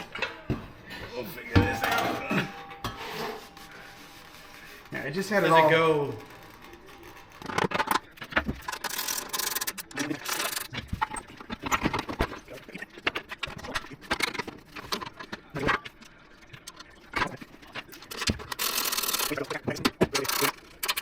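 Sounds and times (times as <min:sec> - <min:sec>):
metal exhaust pipe clanking: 0:00.0 - 0:07.7.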